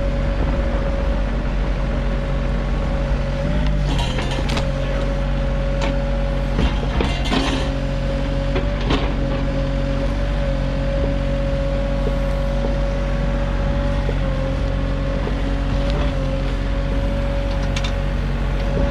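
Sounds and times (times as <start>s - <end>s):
diesel engine running: 0.0s - 18.9s
steady whine: 0.0s - 18.9s
machine knocks and clanks: 3.7s - 5.1s, 5.8s - 7.8s.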